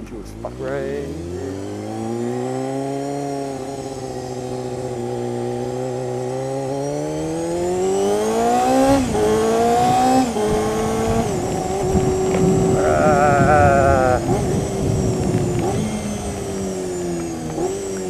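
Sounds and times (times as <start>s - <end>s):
motorcycle engine revving: 0.0s - 18.0s
wind noise: 8.5s - 17.7s.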